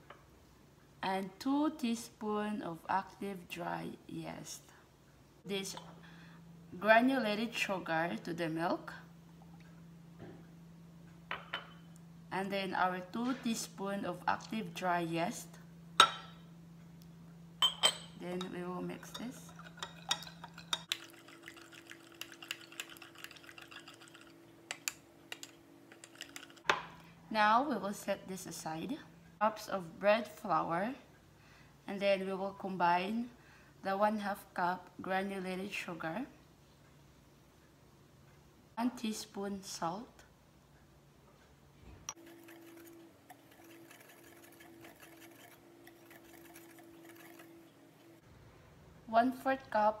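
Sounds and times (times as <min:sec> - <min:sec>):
faint steady hum: 0:00.0 - 0:50.0
metal spoon clinking in glass: 0:17.6 - 0:18.5
whisk ticking against glass bowl: 0:42.1 - 0:47.6.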